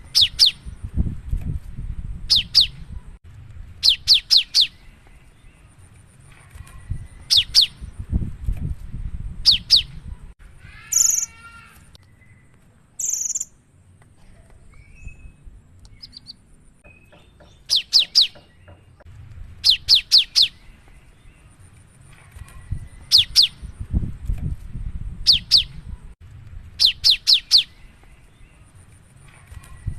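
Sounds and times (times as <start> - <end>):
harsh buzzy bird call: 10.6 - 12.0.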